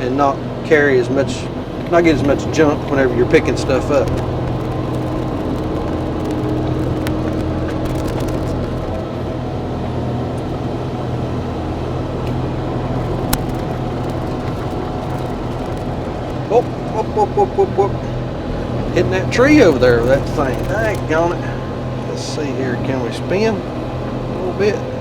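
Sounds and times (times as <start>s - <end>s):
diesel engine running: 0.0s - 25.0s
sharp clicks: 3.6s - 9.1s, 13.0s - 17.1s, 19.6s - 21.2s.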